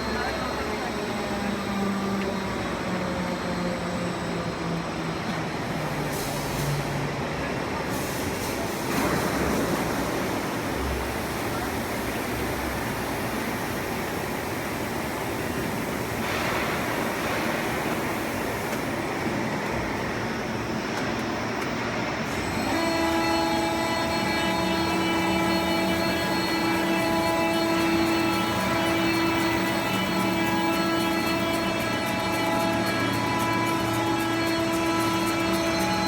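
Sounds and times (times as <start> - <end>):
injection moulding machine running: 0.0 - 36.0
steady pitched tone: 22.4 - 36.0.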